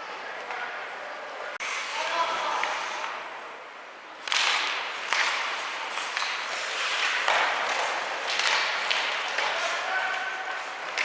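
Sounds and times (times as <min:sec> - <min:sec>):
skates scraping ice: 0:00.1 - 0:03.6, 0:04.2 - 0:11.0
hockey sticks and puck clacking: 0:04.2 - 0:11.0.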